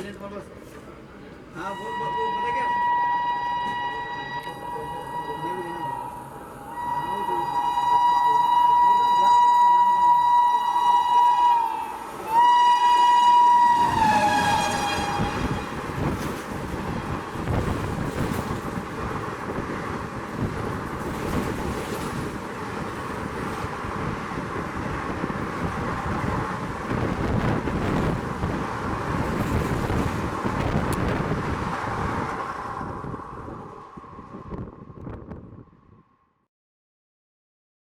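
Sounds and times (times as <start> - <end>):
train coaches rushing by: 0.0 - 34.7
train horn: 1.6 - 16.2.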